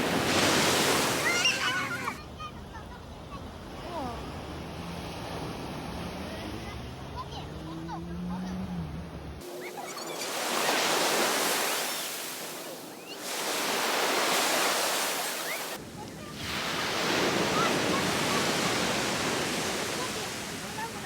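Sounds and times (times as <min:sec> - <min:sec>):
sea surf breaking on beach: 0:00.0 - 0:02.2, 0:09.4 - 0:21.0.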